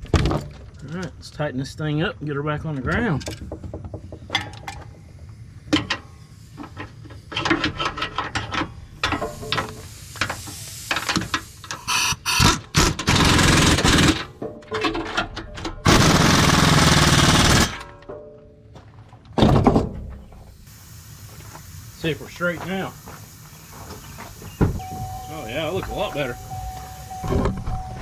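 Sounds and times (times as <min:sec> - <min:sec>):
impact wrench bursts: 0:05.8 - 0:14.3, 0:15.8 - 0:17.8, 0:20.3 - 0:28.0.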